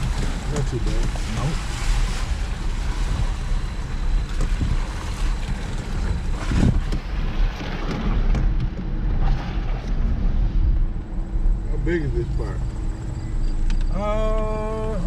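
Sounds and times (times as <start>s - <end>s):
wind buffeting microphone: 0.0s - 11.7s
off-road vehicle engine rumble: 0.0s - 15.0s.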